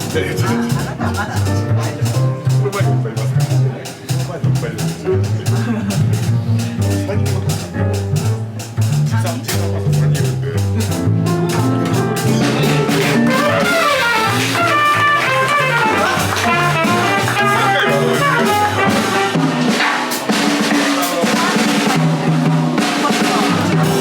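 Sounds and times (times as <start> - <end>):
bass line: 0.0 - 20.4
drum kit with rimshots and cymbals: 0.0 - 24.0
fast melodic run: 10.9 - 21.9.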